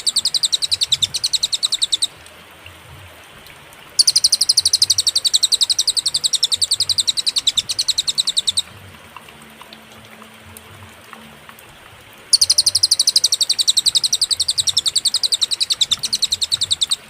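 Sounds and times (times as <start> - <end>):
bird trilling high chirps: 0.0 - 2.2, 4.0 - 8.7, 12.3 - 17.0.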